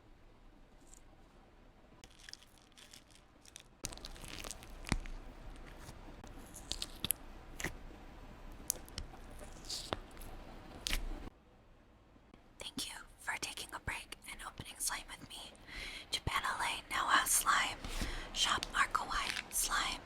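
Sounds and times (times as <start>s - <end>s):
slime popping: 2.0s - 7.8s, 18.6s - 19.6s
slime squelching and crackling: 2.0s - 7.8s, 8.6s - 11.1s, 17.2s - 20.0s.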